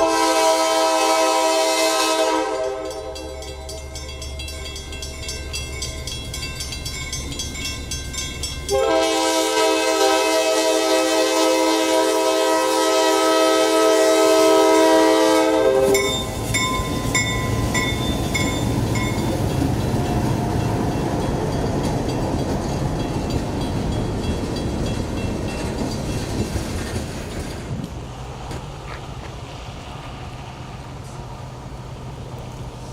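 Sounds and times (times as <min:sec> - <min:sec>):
train air horn chord: 0:00.0 - 0:03.5, 0:08.7 - 0:16.3
train rumble and wheel clatter: 0:00.0 - 0:32.9
bell rings: 0:02.6 - 0:08.8, 0:16.0 - 0:19.4.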